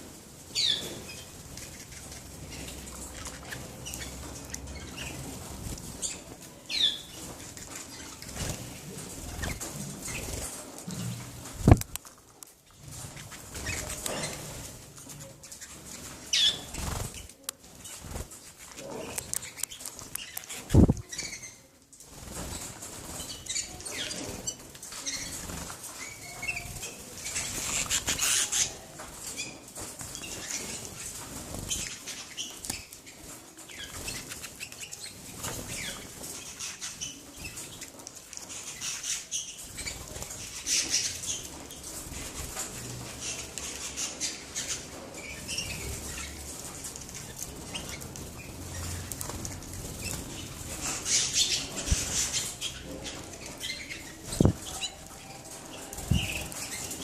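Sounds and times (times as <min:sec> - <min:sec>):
canaries fluttering wings: 0:00.0 - 0:57.0
canary chirps: 0:00.0 - 0:57.0.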